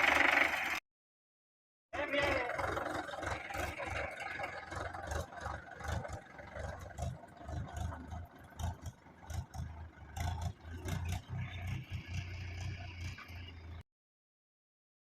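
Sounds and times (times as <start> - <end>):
tractor diesel engine running: 0.0 - 0.8, 2.0 - 13.8.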